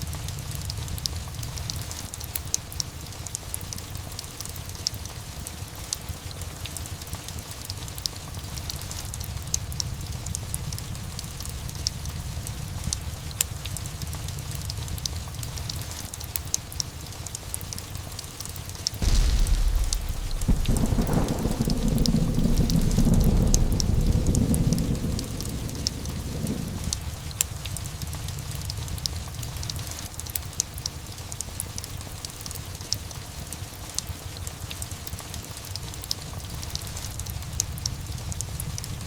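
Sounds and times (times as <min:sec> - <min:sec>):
steady rain: 0:00.0 - 0:39.0
thunderclap rumbling: 0:19.0 - 0:29.0
sharp ticks: 0:19.0 - 0:30.0.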